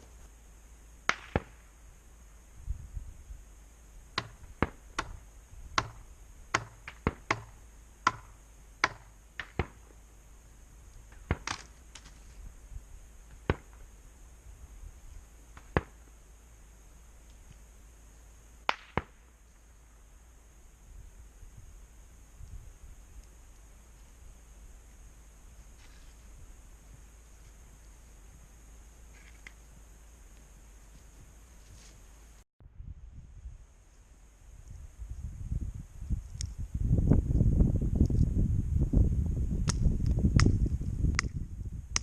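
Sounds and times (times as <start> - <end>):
firewood cracking: 10.9 - 12.4.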